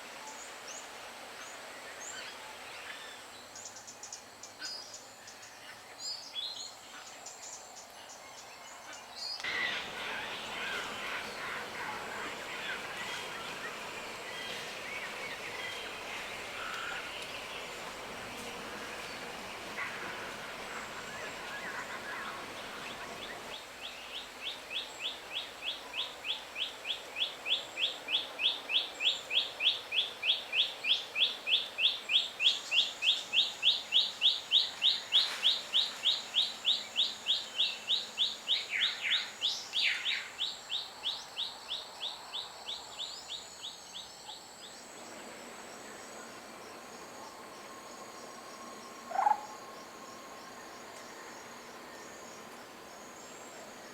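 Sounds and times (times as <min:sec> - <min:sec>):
other bird calls: 0:09.4 - 0:23.5, 0:49.0 - 0:49.6.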